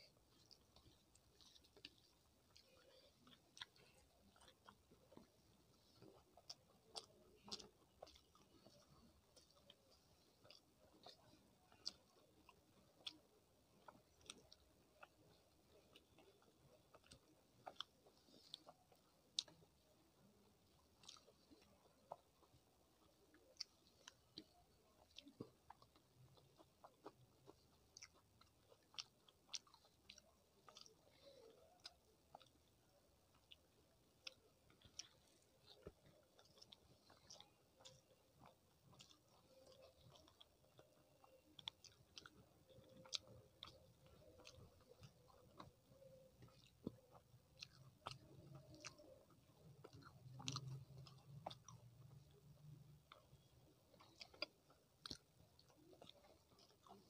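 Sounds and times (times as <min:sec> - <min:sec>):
close chewing: 0:00.0 - 0:57.0.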